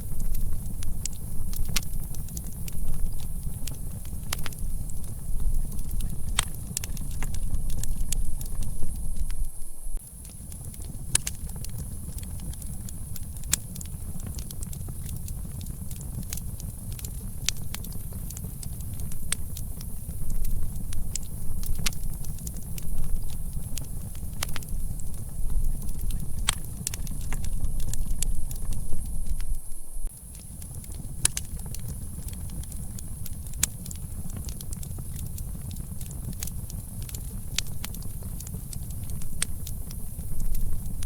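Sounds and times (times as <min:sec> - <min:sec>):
low steady rumble: 0:00.0 - 0:11.2, 0:11.8 - 0:30.2
campfire crackling and popping: 0:00.0 - 0:41.0.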